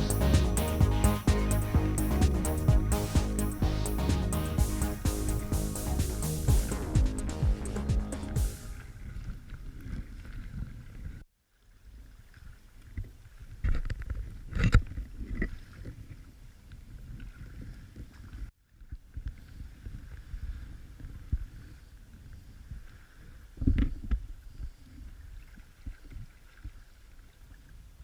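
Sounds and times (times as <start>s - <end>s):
paddle strokes splashing water: 25.2s - 27.7s.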